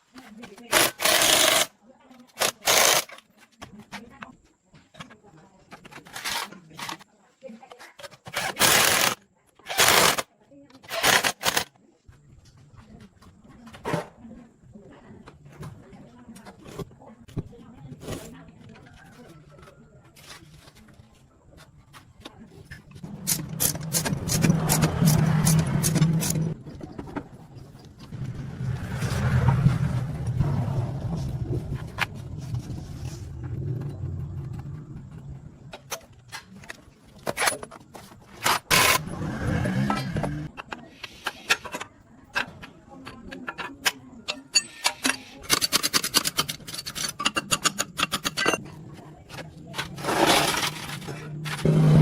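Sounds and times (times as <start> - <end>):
metal tools clicking and scraping: 22.6 - 26.8, 39.8 - 51.7.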